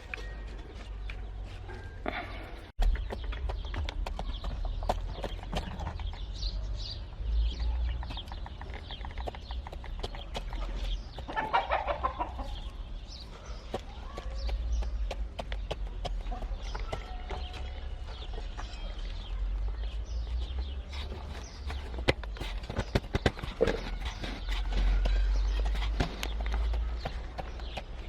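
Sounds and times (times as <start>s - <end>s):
chickens clucking: 7.0s - 28.0s.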